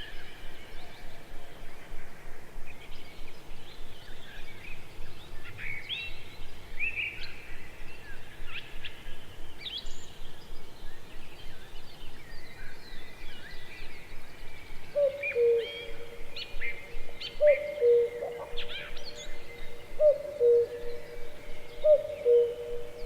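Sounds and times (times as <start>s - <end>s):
outdoor background hiss: 0.0s - 23.0s
birds chirping and calling: 14.7s - 23.0s.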